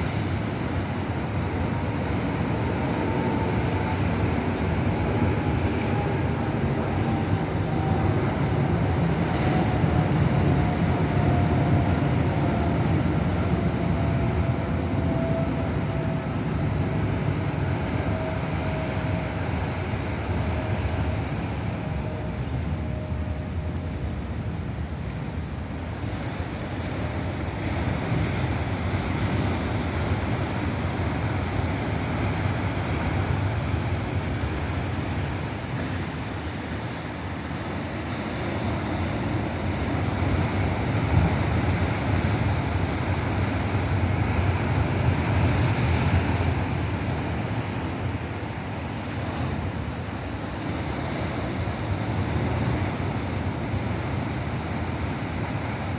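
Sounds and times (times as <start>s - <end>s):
ocean surf breaking: 26.1s - 55.9s.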